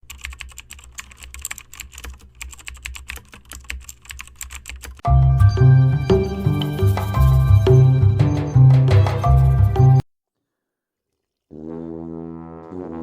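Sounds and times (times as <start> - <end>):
music: 5.0 - 10.0.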